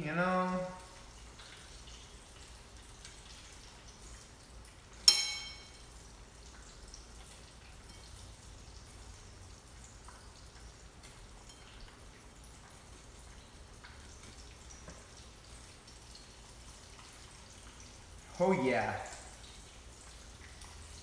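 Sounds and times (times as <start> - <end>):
metallic clink: 5.1 - 5.9.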